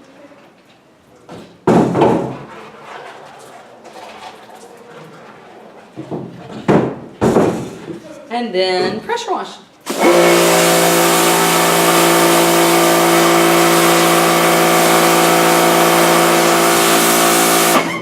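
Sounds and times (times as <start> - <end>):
pressure washer water jet hissing: 9.8 - 18.0
pump humming: 9.9 - 18.0.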